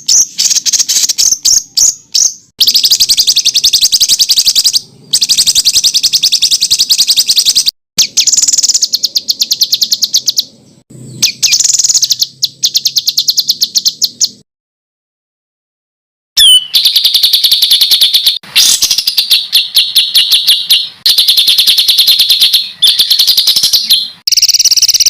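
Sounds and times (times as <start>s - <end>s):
songbird rapid high notes: 16.4s - 25.0s.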